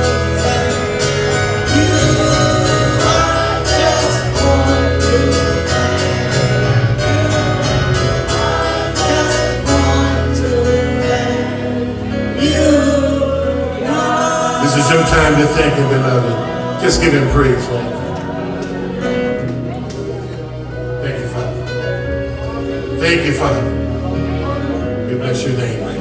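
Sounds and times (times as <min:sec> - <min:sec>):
person singing: 0:00.0 - 0:19.0
gospel band playing: 0:00.0 - 0:26.0.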